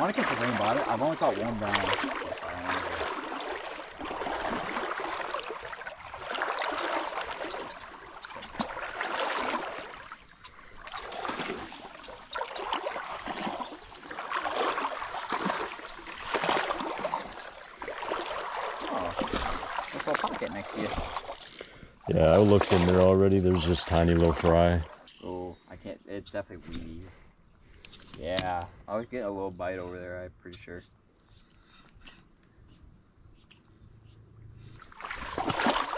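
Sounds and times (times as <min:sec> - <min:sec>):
flowing water: 0:00.0 - 0:25.1, 0:34.7 - 0:35.9
water splashing and sloshing: 0:00.0 - 0:25.2, 0:34.6 - 0:35.9.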